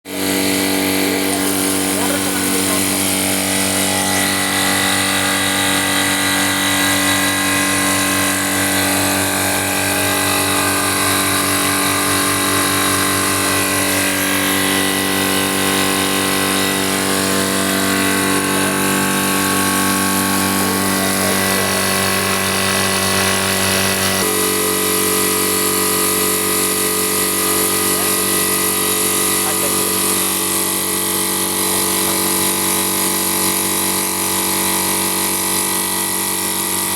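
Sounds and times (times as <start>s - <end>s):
air compressor humming: 0.0s - 36.9s.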